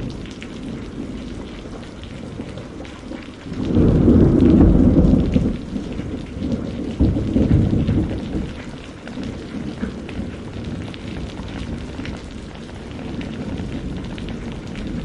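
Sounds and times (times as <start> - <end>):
rain pattering: 0.0 - 15.0
deep thunder rumble: 3.4 - 15.0.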